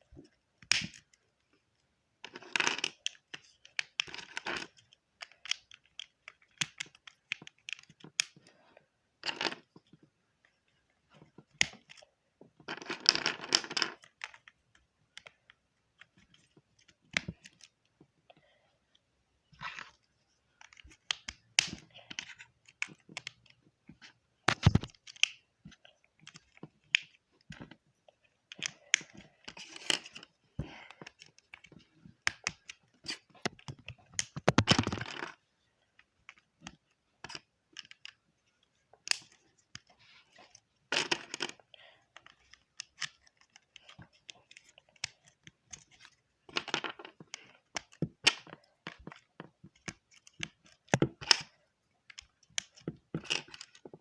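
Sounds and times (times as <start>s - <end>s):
plastic pieces clicking together: 0.6s - 1.2s, 2.2s - 8.5s, 19.6s - 35.4s, 36.0s - 38.2s, 40.9s - 54.0s.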